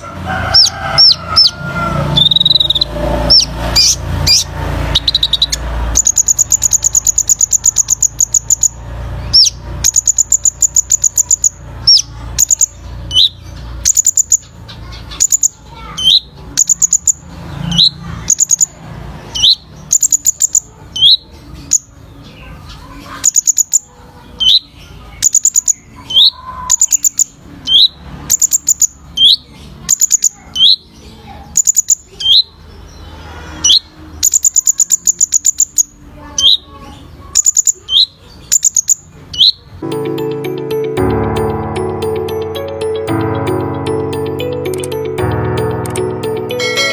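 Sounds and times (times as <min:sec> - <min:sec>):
sunbird high ticking notes: 0:02.2 - 0:18.8, 0:39.8 - 0:46.9.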